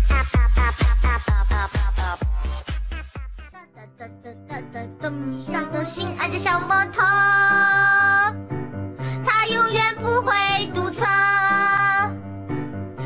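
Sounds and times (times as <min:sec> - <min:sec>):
bass line: 0:00.0 - 0:03.5
high singing voice: 0:09.3 - 0:12.2.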